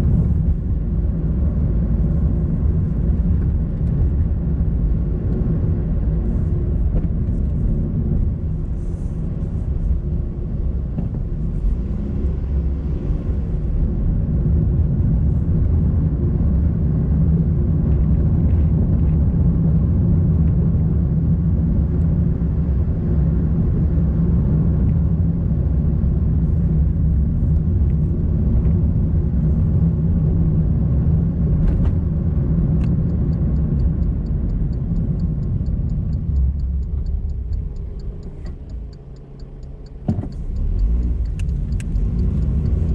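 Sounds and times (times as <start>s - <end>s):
car engine and road noise: 0.0s - 42.9s
fast even ticking: 33.1s - 42.9s.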